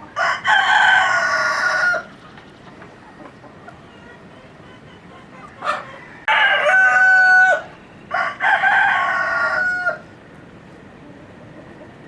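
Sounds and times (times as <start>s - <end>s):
rooster crowing: 0.2s - 2.1s, 5.6s - 10.1s.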